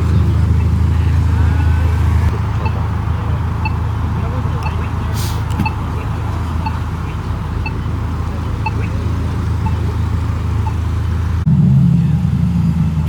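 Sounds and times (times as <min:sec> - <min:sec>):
car engine rumble: 0:00.0 - 0:13.0
loud low hum: 0:00.0 - 0:13.0
faint high beeping: 0:01.8 - 0:10.9.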